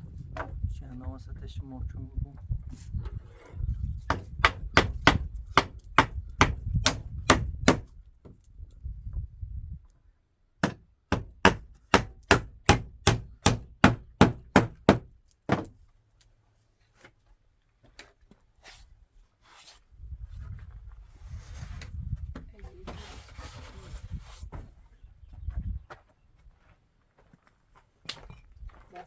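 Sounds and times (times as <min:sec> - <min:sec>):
hammer striking nails into wood: 0:04.1 - 0:07.9, 0:10.6 - 0:15.8.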